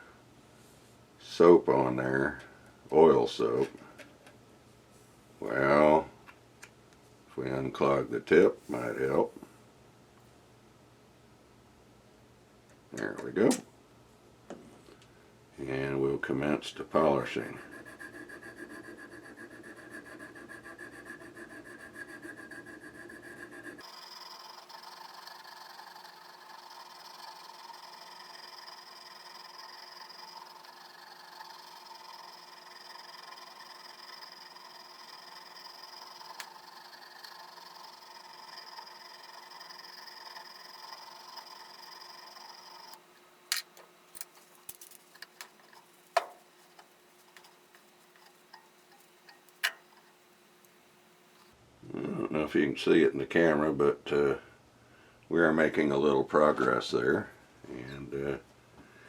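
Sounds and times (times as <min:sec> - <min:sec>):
stone scraping on steel: 0:17.3 - 0:51.5.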